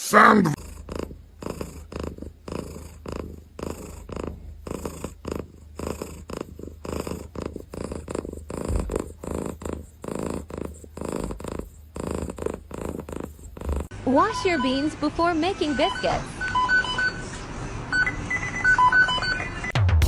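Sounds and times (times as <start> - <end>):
cat purring: 0.5 - 13.9.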